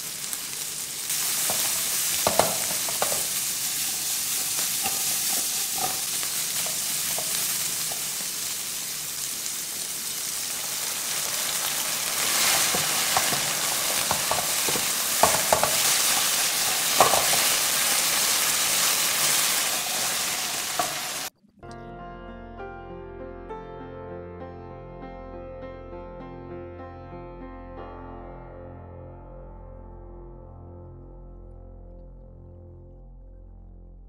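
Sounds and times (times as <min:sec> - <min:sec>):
vegetables sizzling in a frying pan: 0:00.0 - 0:21.3
spatula stirring: 0:01.3 - 0:08.6, 0:12.0 - 0:17.9
spatula knocking against pan: 0:01.5 - 0:03.2, 0:12.7 - 0:15.8.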